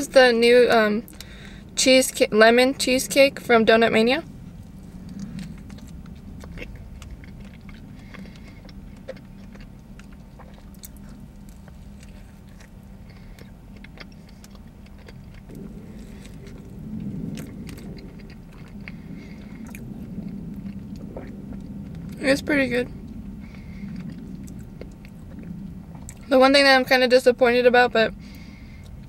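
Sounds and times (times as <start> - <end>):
steady low hum: 0.0 - 29.0
person chewing with wet smacks: 4.5 - 26.3.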